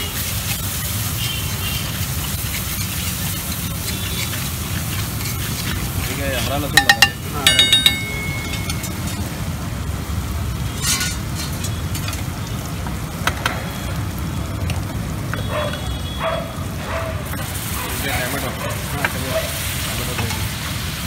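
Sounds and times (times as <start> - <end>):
paste sizzling on a griddle: 0.0 - 21.0
metal utensil taps: 6.8 - 9.2.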